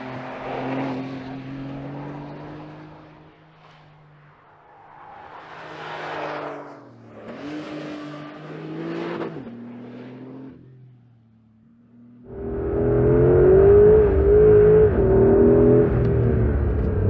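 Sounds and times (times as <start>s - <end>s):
car exhaust accelerating: 12.2s - 17.0s.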